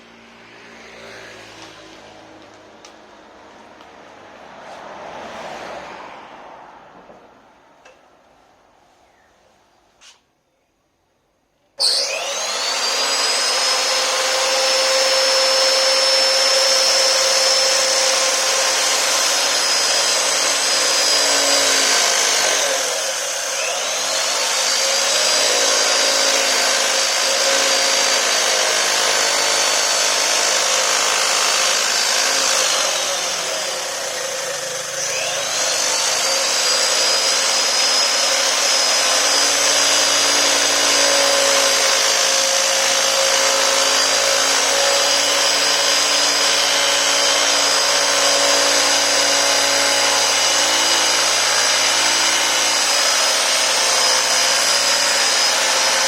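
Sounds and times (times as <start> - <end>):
power tool motor whining: 11.8 - 56.0.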